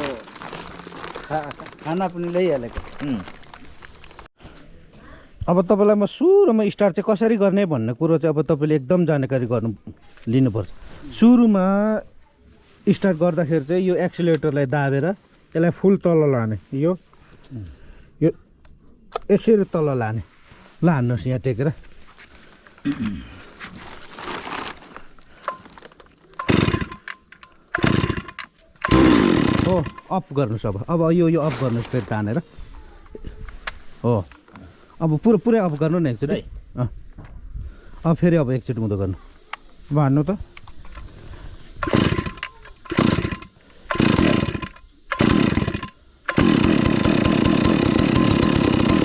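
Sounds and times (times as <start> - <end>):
recoil starter cord pulled: 26.4 - 30.1, 41.8 - 49.0
chainsaw engine firing briefly: 27.8 - 30.0, 41.8 - 49.0.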